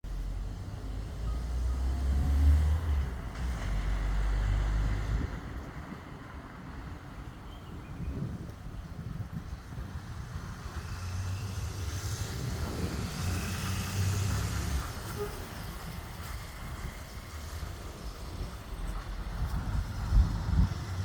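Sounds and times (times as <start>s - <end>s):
vehicle engine rumble: 0.0s - 21.0s
road hiss: 9.0s - 21.0s.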